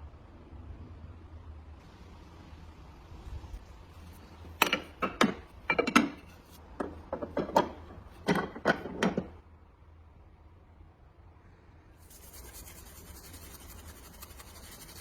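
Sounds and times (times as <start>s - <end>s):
hard objects knocking: 4.6s - 9.4s.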